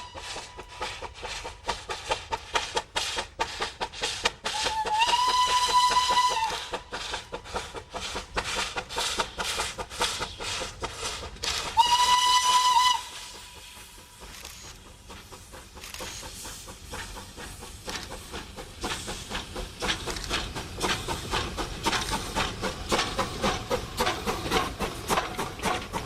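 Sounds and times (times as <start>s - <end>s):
steam hissing: 0.0s - 26.0s
steam locomotive chuffing: 0.0s - 26.0s
steam whistle blasts: 4.5s - 6.8s, 11.8s - 13.7s.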